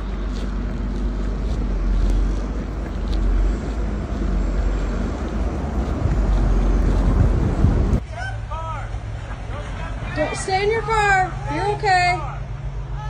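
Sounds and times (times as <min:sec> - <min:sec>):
blizzard wind buffeting microphone: 0:00.0 - 0:08.0.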